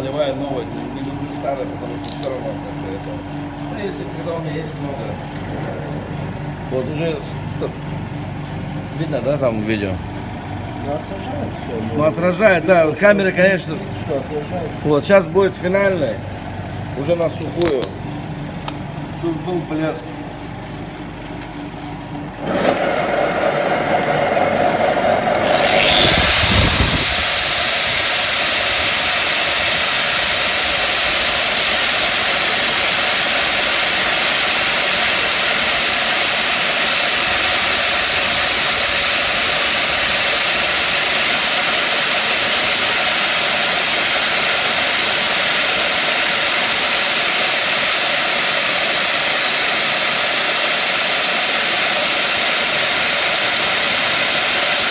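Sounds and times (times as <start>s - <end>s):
tool spinning up with whine: 22.4s - 54.9s
power tool motor: 25.1s - 54.9s
abrasive hissing on metal: 25.5s - 54.9s.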